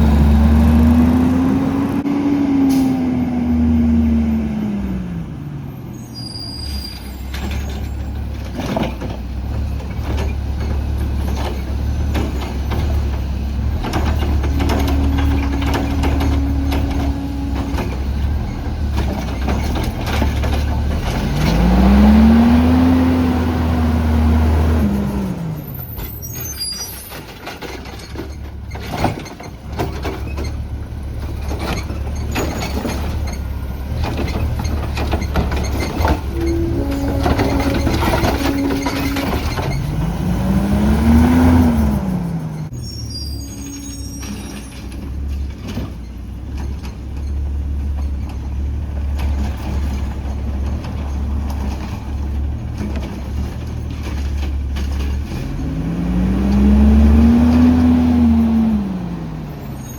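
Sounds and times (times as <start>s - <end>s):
garbage truck engine revving: 0.0s - 6.0s, 6.6s - 59.9s
air brakes hissing: 2.6s - 3.2s, 5.8s - 7.9s.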